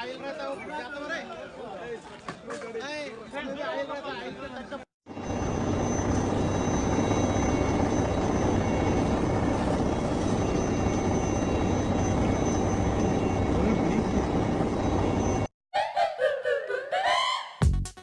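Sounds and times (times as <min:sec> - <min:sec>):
aircraft engine rumble with whine: 0:05.2 - 0:15.4.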